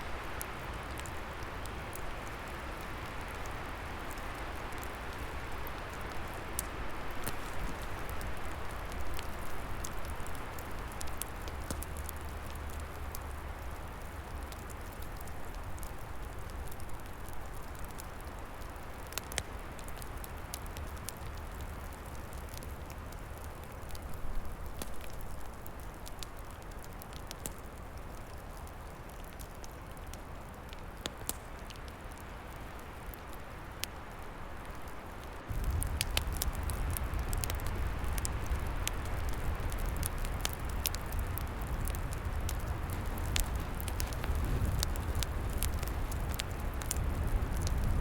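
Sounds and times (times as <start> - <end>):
wood fire crackling and popping: 0.0 - 48.0.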